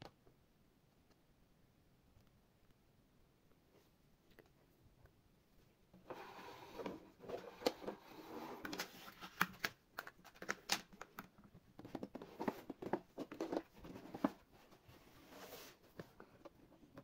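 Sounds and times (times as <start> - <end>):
rustling and scraping: 6.0 - 9.7, 11.8 - 17.0.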